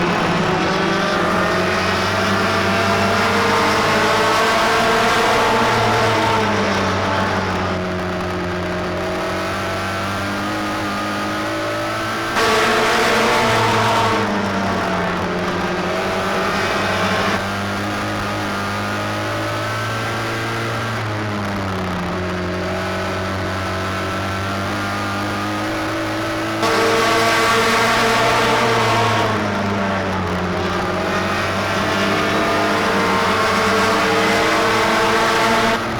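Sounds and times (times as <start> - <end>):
racing engine at speed: 0.0 - 35.9.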